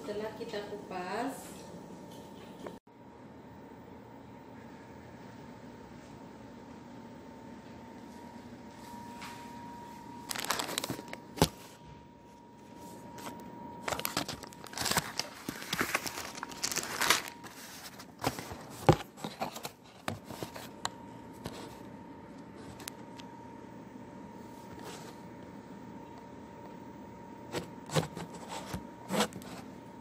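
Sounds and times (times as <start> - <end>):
faint steady whine: 0.0 - 30.0
crinkling and rustling handling: 10.0 - 23.2, 27.5 - 29.9.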